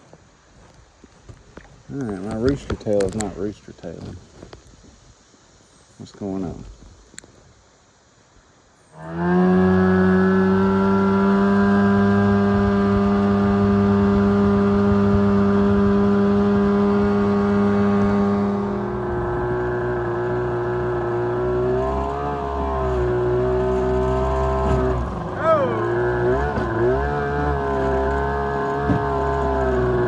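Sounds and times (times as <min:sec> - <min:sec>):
boat engine at high revs: 0:08.9 - 0:30.0.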